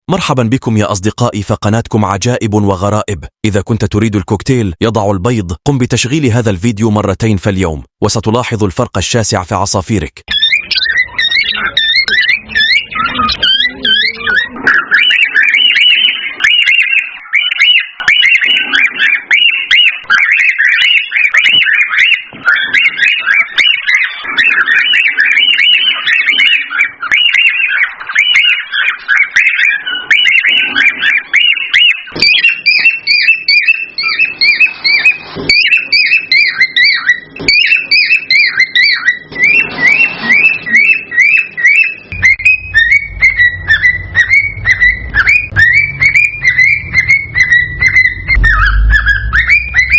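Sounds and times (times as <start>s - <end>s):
cockatiels whistling chirps: 10.3s - 49.9s
low hum: 42.1s - 49.9s.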